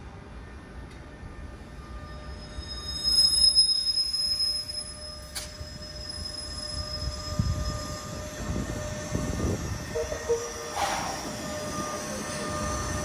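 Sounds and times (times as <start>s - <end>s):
rumble of train wheels: 0.0s - 13.0s
wheel squeal: 2.1s - 8.3s.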